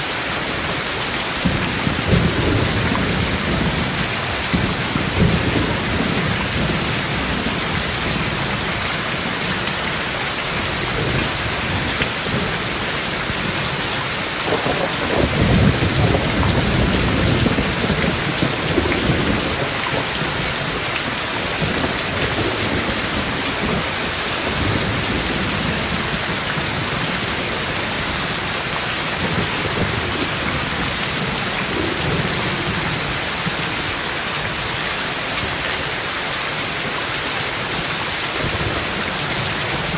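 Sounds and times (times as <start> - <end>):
heavy rain falling: 0.0 - 39.9
thunder rumbling: 1.3 - 33.6.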